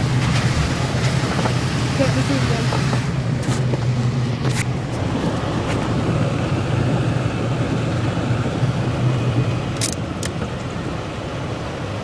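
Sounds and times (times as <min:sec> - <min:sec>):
car engine and road drone: 0:00.0 - 0:12.0
sharp click: 0:09.8 - 0:10.4.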